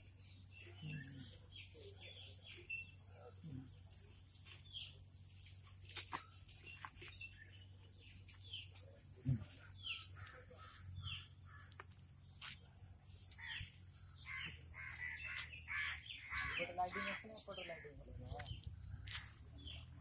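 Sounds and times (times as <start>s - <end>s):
birds short falling calls: 14.3s - 17.4s.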